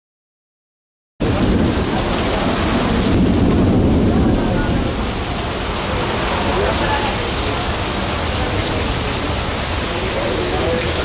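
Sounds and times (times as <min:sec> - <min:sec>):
deep thunder rumble: 0:01.2 - 0:08.6
heavy rain pouring: 0:01.2 - 0:11.0.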